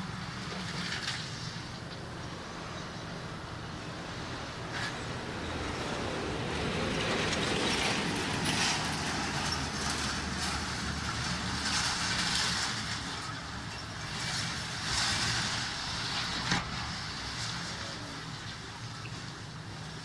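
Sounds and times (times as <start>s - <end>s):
metallic clatter: 0.0s - 2.3s, 7.2s - 19.4s
diesel engine hum: 0.0s - 20.0s.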